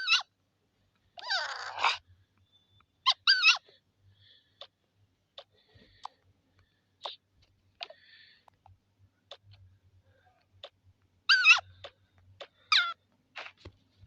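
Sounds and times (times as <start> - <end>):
animal wavering cries: 0.0 - 0.3, 1.2 - 2.0, 3.0 - 3.8, 11.2 - 12.0, 12.6 - 13.0
animal chirps and clicks: 10.6 - 13.0.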